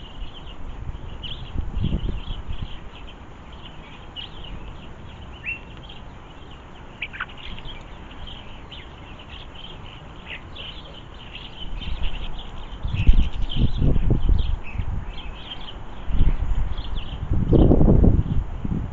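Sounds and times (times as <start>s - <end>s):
small birds twittering: 0.0s - 18.6s
wind rumble on microphone: 0.0s - 18.9s
sharp downward-sliding bird calls: 7.0s - 12.3s.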